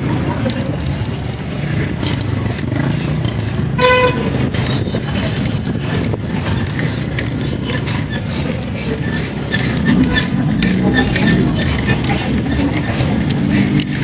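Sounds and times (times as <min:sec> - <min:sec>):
vehicle engines rumbling: 0:00.0 - 0:14.0
horn toot: 0:03.8 - 0:05.1.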